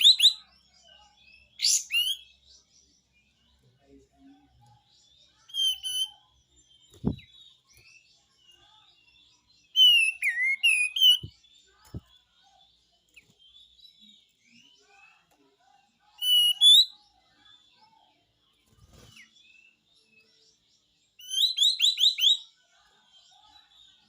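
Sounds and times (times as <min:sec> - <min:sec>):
faint bird chirps: 0:00.0 - 0:24.0.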